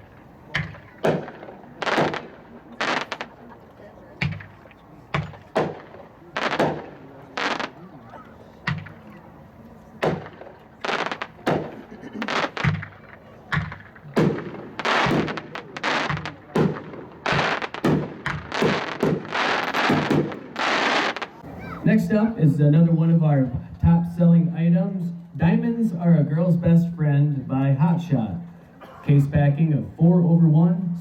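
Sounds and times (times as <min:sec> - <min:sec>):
fireworks bangs: 0:00.0 - 0:03.5, 0:04.2 - 0:08.0, 0:08.6 - 0:09.2, 0:10.0 - 0:21.8
fireworks crackle: 0:00.0 - 0:03.5, 0:04.3 - 0:07.9, 0:10.0 - 0:21.4.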